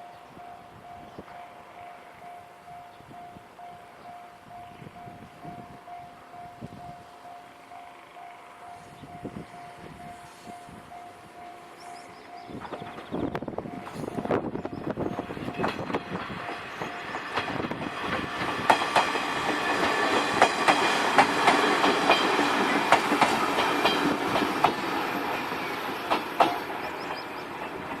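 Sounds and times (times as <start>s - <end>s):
train rumble: 0.0s - 28.0s
train wheels clacking over rail joints: 15.2s - 28.0s.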